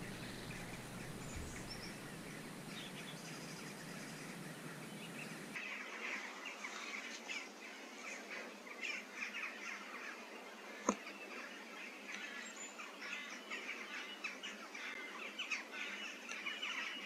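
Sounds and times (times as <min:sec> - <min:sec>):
small birds chirping and twittering: 0:00.0 - 0:17.0
steady background hiss: 0:00.0 - 0:17.0.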